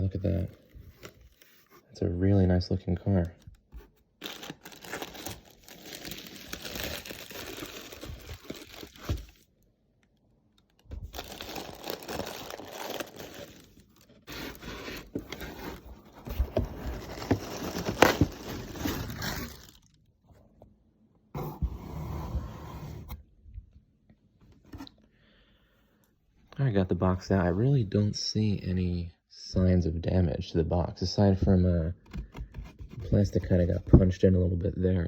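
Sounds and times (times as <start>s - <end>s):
packaging rustling and crinkling: 3.8s - 9.5s, 10.6s - 20.0s.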